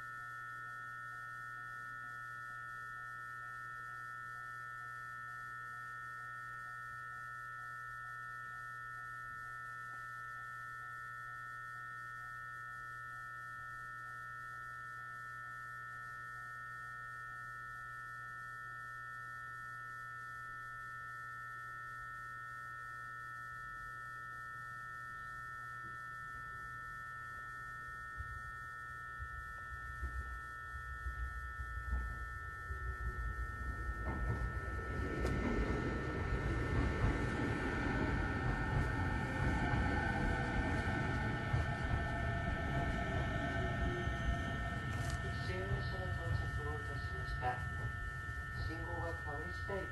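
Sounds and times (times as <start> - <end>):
high electrical whine: 0.0 - 49.9
low hum: 0.0 - 49.9
irregular low rumble: 29.2 - 49.9.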